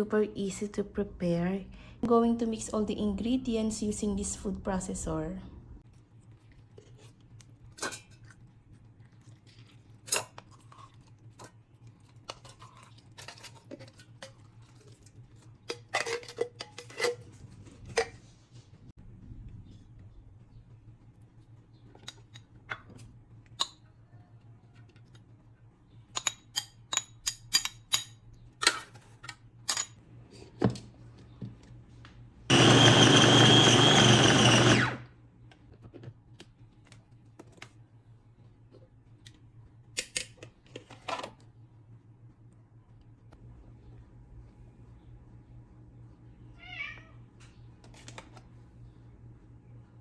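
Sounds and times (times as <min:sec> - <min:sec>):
food processor motor whining: 0:32.5 - 0:35.1.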